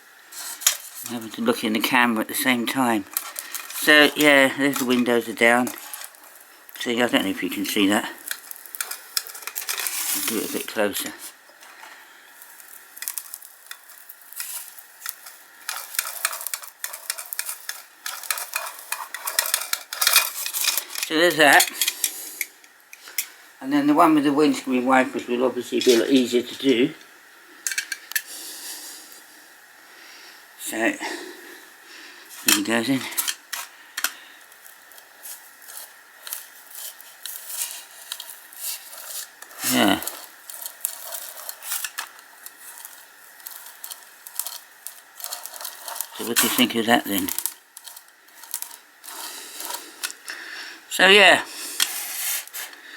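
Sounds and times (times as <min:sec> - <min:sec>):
toy car clicking and rattling: 0:03.0 - 0:06.4, 0:08.2 - 0:10.7, 0:12.9 - 0:22.2, 0:35.2 - 0:50.2.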